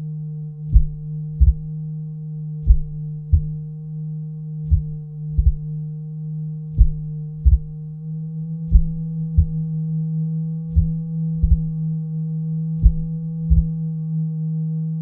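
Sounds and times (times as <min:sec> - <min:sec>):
low electronic drone: 0:00.0 - 0:15.0
soft low thumps: 0:00.6 - 0:01.8, 0:02.6 - 0:03.8, 0:04.6 - 0:05.8, 0:06.7 - 0:08.0, 0:08.6 - 0:09.7, 0:10.7 - 0:11.9, 0:12.8 - 0:13.8.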